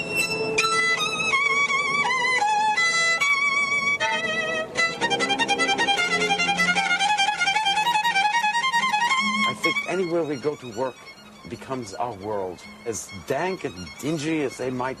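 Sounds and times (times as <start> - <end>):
solo violin melody: 0.0 - 15.0.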